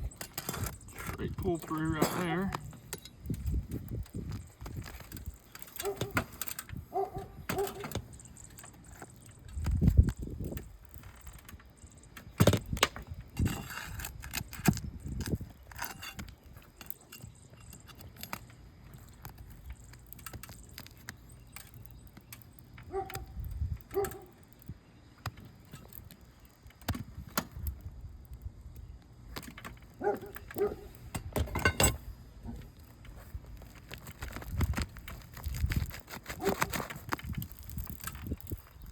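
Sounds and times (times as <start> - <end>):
bar prying at roof shingles: 29.4 - 32.1.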